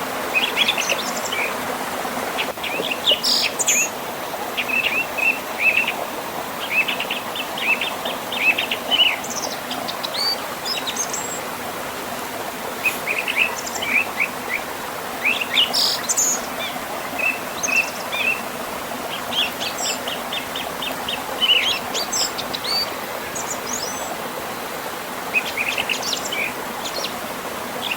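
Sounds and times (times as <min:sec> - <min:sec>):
small birds chirping: 0:12.8 - 0:24.2, 0:25.3 - 0:27.9.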